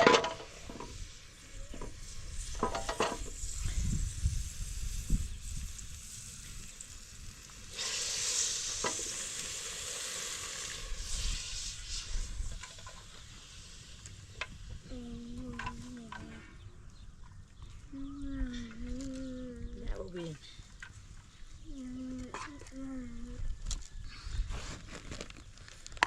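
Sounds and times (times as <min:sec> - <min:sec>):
food sizzling in hot oil: 0:00.5 - 0:14.8.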